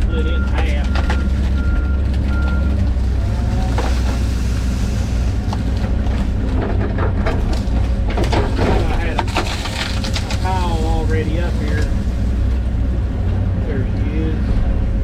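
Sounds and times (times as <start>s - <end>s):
wood cracking and splitting: 0.0s - 13.4s
excavator diesel engine running: 0.0s - 15.0s
travel alarm beeping: 0.1s - 2.8s.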